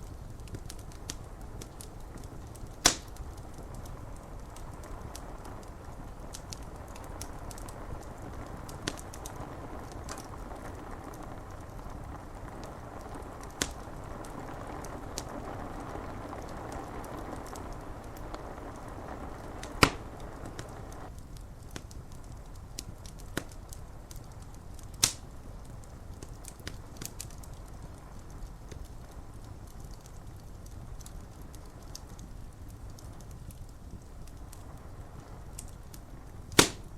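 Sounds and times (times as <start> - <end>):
rain hissing: 0.0 - 21.2, 34.1 - 36.9
loud pops from fire: 0.0 - 36.9
wood fire crackling: 0.0 - 36.9.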